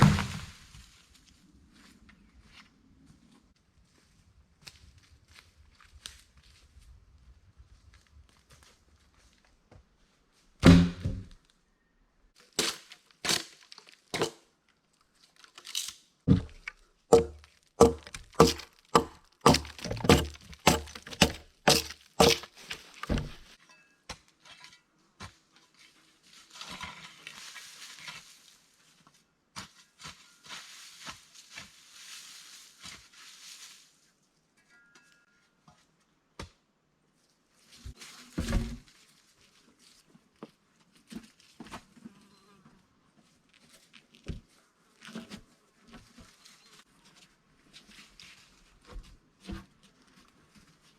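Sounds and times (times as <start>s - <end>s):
rasping scraping on wood: 17.1s - 22.5s.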